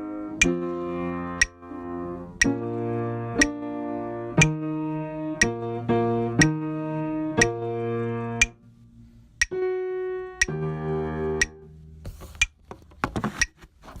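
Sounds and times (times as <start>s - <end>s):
held music chords: 0.0s - 12.6s
steady ticking: 0.4s - 0.6s, 1.4s - 1.6s, 2.4s - 2.6s, 3.4s - 3.6s, 4.4s - 4.6s, 6.4s - 6.6s, 7.4s - 7.6s, 9.4s - 9.6s.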